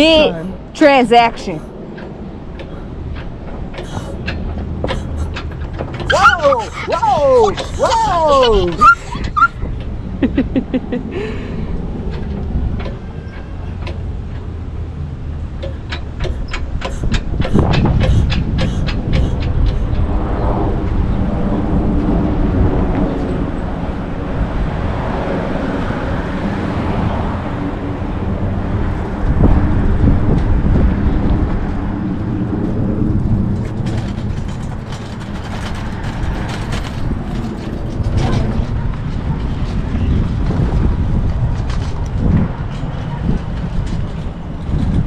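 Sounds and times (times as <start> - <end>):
wind rumble on microphone: 0.0 - 45.0
bicycle rolling noise: 11.8 - 45.0.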